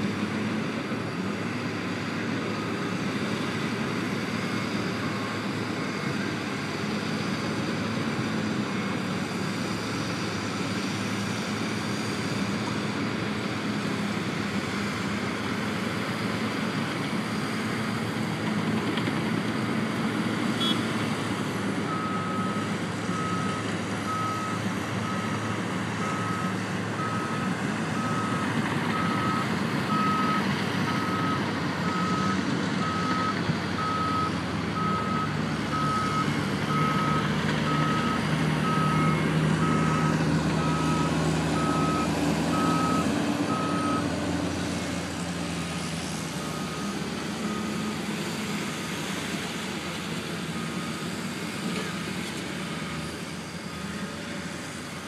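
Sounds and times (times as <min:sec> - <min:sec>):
engine running: 0:00.0 - 0:55.0
vehicle backup alarm beeping: 0:20.6 - 0:20.9, 0:21.8 - 0:44.1, 0:46.4 - 0:48.0.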